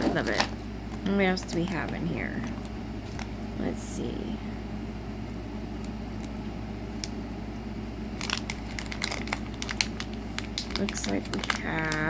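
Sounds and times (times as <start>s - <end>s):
steady low hum: 0.0s - 12.0s
packaging crinkling: 8.1s - 12.0s.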